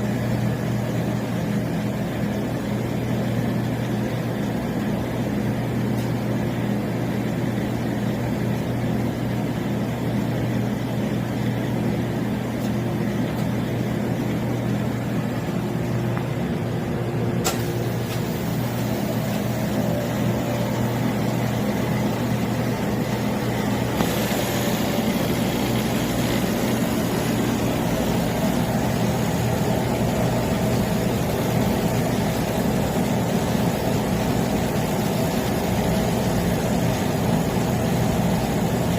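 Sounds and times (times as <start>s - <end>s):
freezer compressor hum: 0.0s - 38.9s
sharp click: 17.4s - 18.2s.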